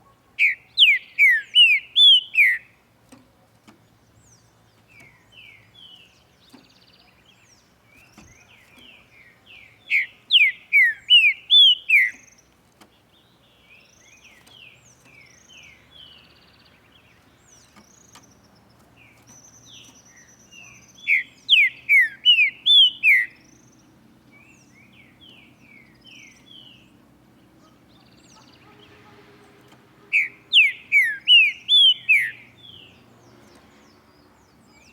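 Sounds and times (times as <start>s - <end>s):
faint bird chirps: 0.0s - 34.9s
bird whistled song: 0.4s - 2.8s, 9.2s - 12.5s, 19.2s - 26.9s, 30.0s - 34.9s.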